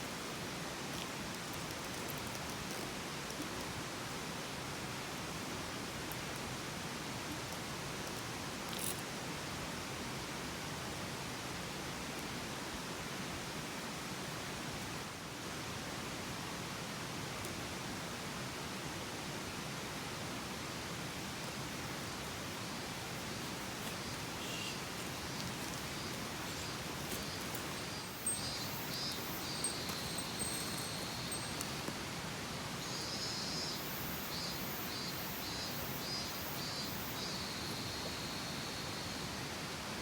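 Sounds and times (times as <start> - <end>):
mountain stream rushing: 15.2 - 36.2.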